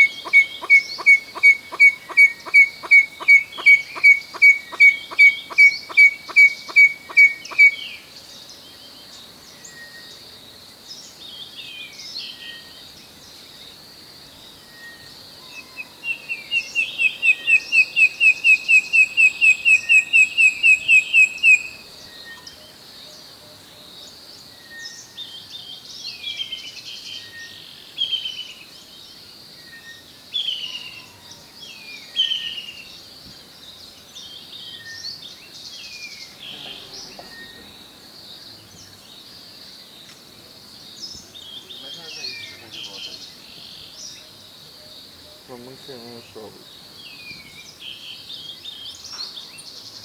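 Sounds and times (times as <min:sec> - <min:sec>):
birds whistling repeated notes: 0:00.0 - 0:08.2, 0:14.4 - 0:22.6, 0:34.4 - 0:39.1
steady high-pitched hiss: 0:00.0 - 0:50.0.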